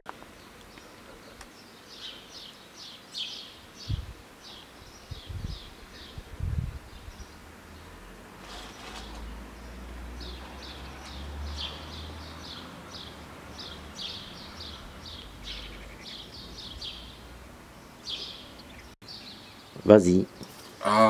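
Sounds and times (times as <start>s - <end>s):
small bird chirping: 8.4s - 17.3s.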